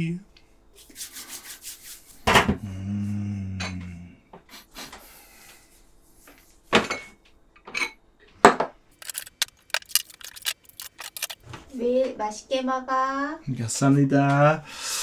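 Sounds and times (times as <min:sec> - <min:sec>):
small clicks: 0:09.0 - 0:11.4.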